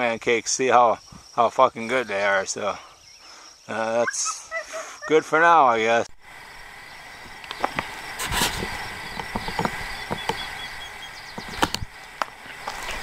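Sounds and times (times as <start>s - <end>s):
insects chirping: 0.0s - 13.0s
knocks and thumps: 7.6s - 10.4s.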